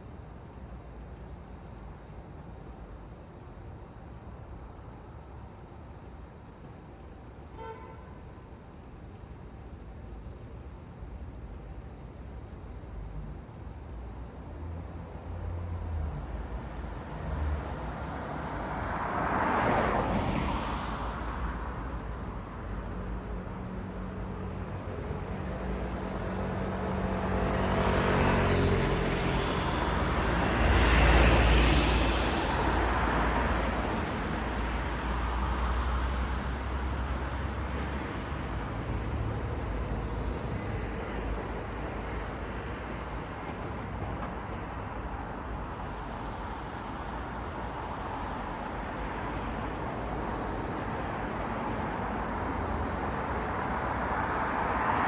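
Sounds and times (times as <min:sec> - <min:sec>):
cars passing close by: 0:17.2 - 0:21.6, 0:26.2 - 0:45.6, 0:48.4 - 0:55.0.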